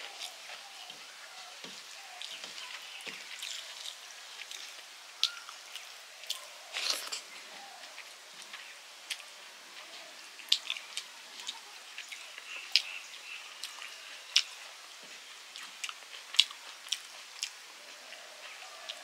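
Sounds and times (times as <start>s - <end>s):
person chewing and mouth smacks: 3.1s - 7.3s, 10.4s - 12.9s, 15.5s - 17.6s.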